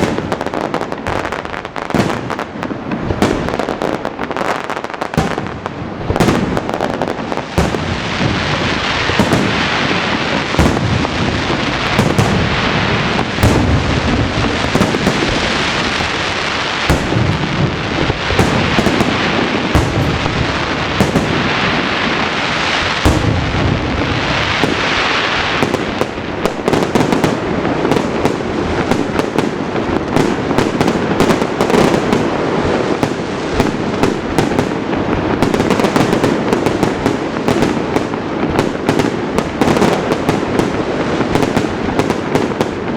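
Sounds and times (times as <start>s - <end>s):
fireworks bangs and crackling: 0.0s - 42.9s.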